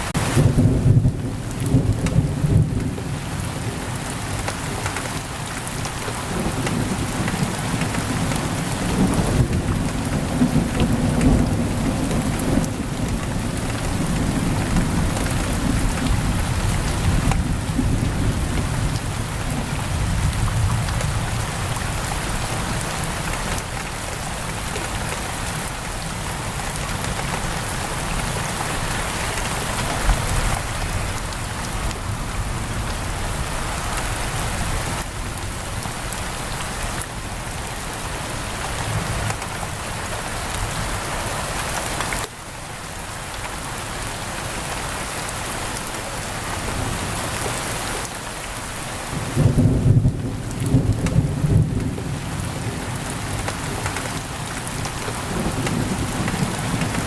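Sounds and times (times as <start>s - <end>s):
heavy rain on a window: 0.0s - 57.0s
thunder rumbling: 49.1s - 57.0s.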